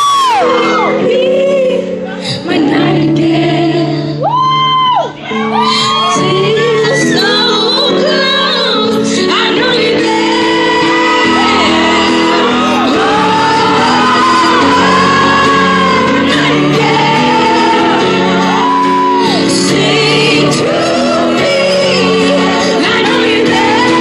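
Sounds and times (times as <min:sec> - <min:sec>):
fans shouting and whooping: 0:00.0 - 0:01.1, 0:04.2 - 0:07.4, 0:10.7 - 0:24.0
female lead vocal: 0:00.0 - 0:04.4, 0:05.4 - 0:24.0
live pop ballad: 0:00.0 - 0:24.0.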